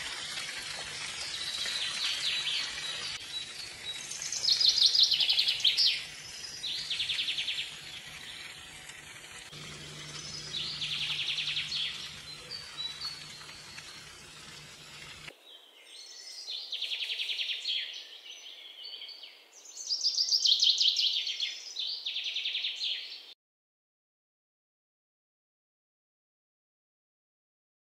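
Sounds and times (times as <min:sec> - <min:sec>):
songbird trilling: 0:09.6 - 0:15.2.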